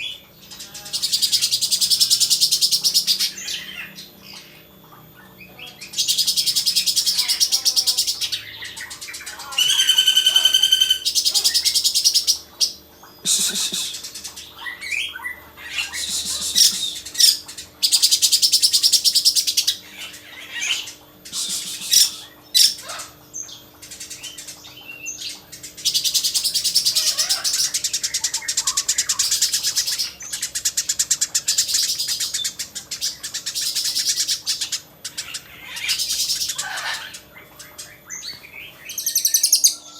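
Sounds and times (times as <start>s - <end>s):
songbird trilling: 0.0s - 39.9s
bird whistling notes: 15.8s - 17.4s, 21.3s - 22.8s.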